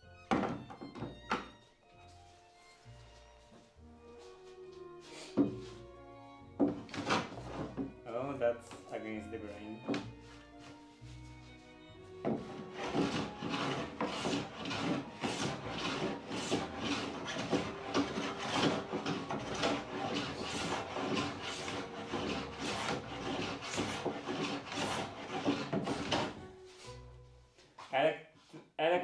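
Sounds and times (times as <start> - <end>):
hand rubbing wood rasping: 6.6 - 8.0, 9.9 - 27.0.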